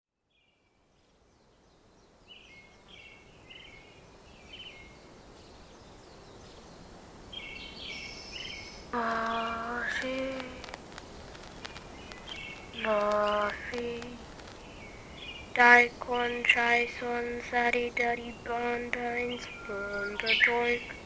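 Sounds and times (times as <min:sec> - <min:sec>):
background hiss: 0:00.3 - 0:21.0
birds chirping: 0:01.1 - 0:21.0
drawn-out bird call: 0:07.6 - 0:21.0.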